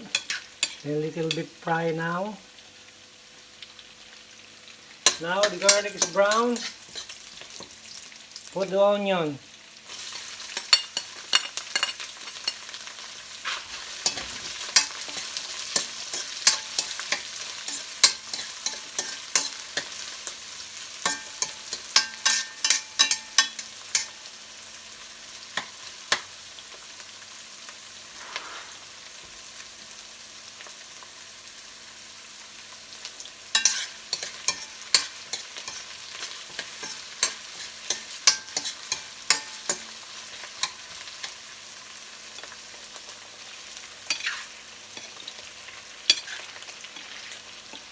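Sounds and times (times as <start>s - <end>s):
spatula scraping and knocking pan: 0.0s - 1.4s, 5.0s - 7.7s, 13.4s - 20.4s, 21.0s - 24.2s, 33.6s - 40.9s
onion sizzling in hot oil: 0.0s - 47.9s.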